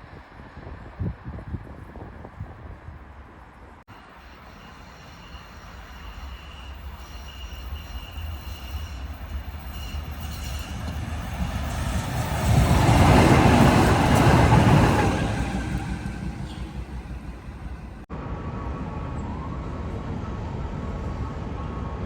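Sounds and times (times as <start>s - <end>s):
tram rumbling past: 0.0s - 22.0s.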